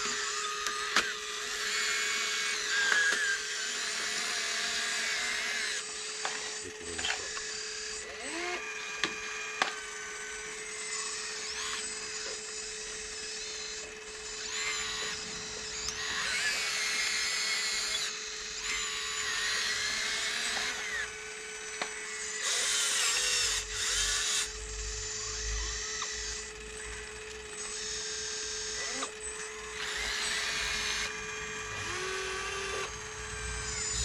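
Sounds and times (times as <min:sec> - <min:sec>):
small electric motors whining: 0:00.0 - 0:34.0
steady hum: 0:14.0 - 0:18.6, 0:29.5 - 0:34.0
low rumble: 0:14.8 - 0:16.8, 0:30.7 - 0:34.0.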